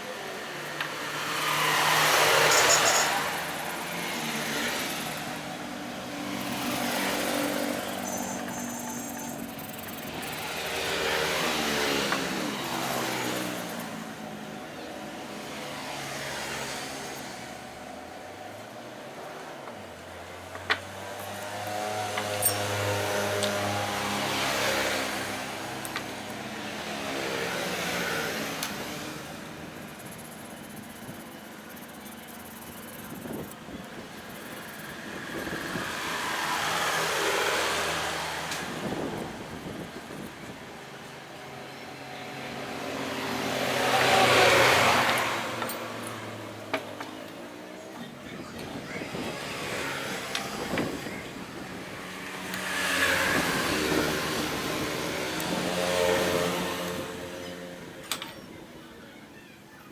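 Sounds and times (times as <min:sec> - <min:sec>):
vehicle passing by: 0:00.1 - 0:17.8, 0:34.0 - 0:46.6, 0:48.6 - 0:58.0.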